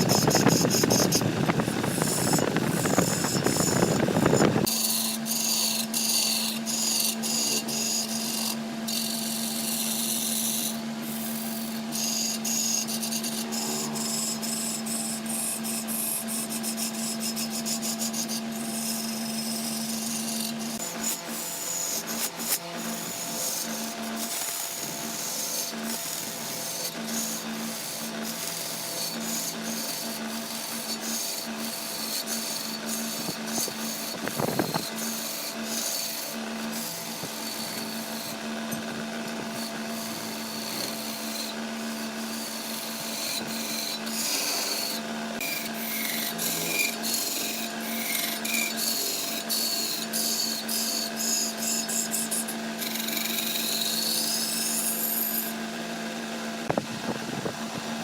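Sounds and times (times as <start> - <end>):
machine motor humming: 0.0 - 4.7
tool scraping on wood: 0.0 - 55.6.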